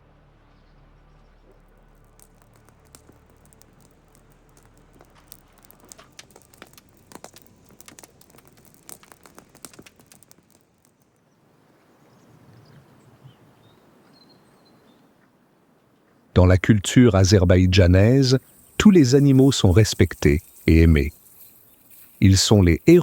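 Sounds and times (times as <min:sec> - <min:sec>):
sharp crackling clicks: 0:01.5 - 0:11.3, 0:16.4 - 0:23.0.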